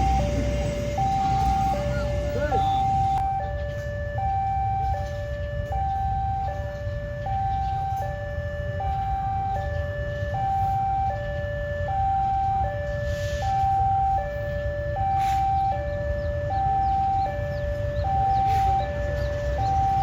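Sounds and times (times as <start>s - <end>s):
low rumble: 0.0s - 3.2s
level-crossing two-tone alarm: 0.0s - 20.0s.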